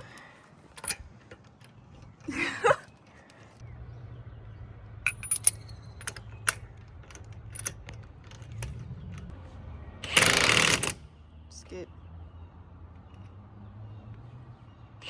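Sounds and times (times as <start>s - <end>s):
small metal pieces clinking: 5.0s - 8.7s.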